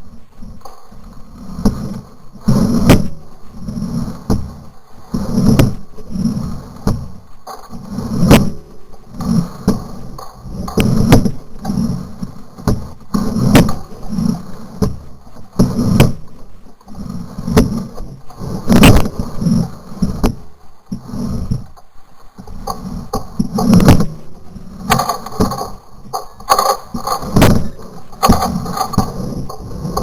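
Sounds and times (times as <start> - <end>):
heavy footsteps on ground: 24.9 - 30.0.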